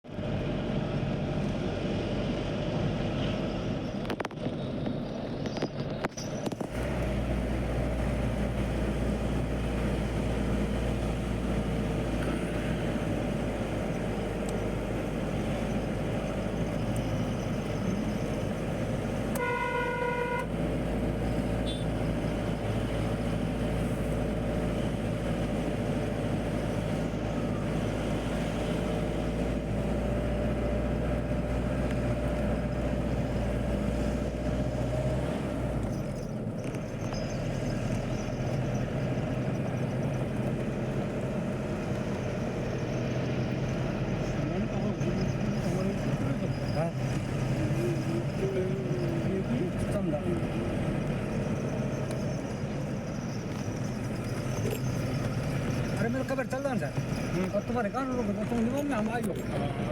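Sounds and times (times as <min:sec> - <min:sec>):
road vehicle running: 0:00.0 - 0:59.9
vehicle horn: 0:19.3 - 0:20.8, 0:21.6 - 0:22.1.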